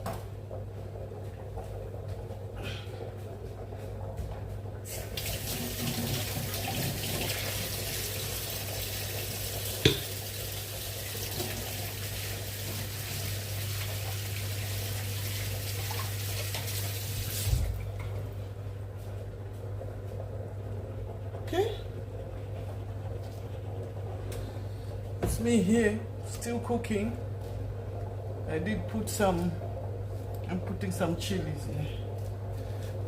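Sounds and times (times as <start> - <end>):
tap water running into sink: 4.9 - 18.1.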